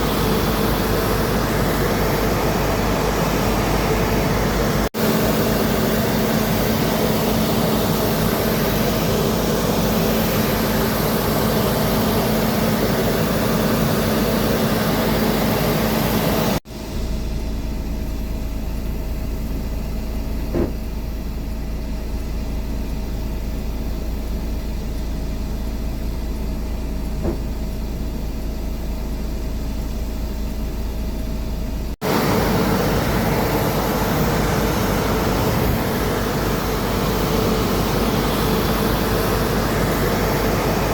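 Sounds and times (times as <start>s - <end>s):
aircraft engines humming: 0.0s - 16.6s, 32.0s - 40.9s
deep rumble: 16.7s - 29.4s.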